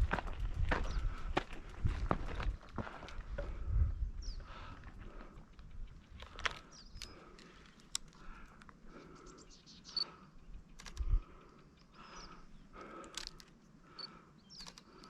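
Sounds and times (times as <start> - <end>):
footsteps crunching on dirt: 0.0 - 3.7
small clicks and ticks: 4.8 - 9.0, 9.9 - 15.0.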